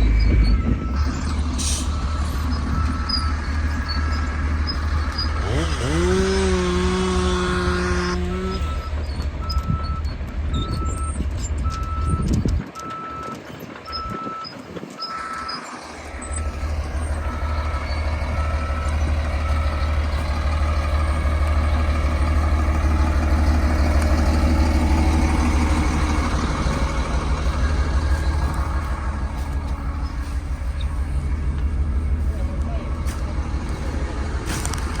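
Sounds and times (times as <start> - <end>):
reversing alarm beeping: 0.0 - 22.7
diesel machinery droning: 0.0 - 35.0.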